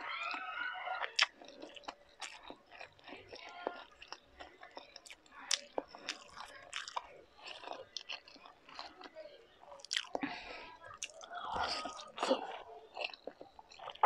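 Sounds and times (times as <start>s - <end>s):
person chewing food: 0.0s - 14.0s
wet mouth clicks and smacks: 1.1s - 2.8s.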